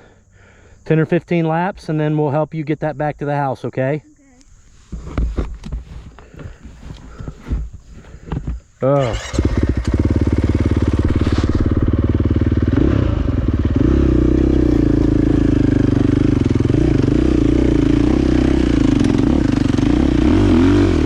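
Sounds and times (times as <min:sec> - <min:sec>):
dirt bike engine revving: 0:08.8 - 0:21.0.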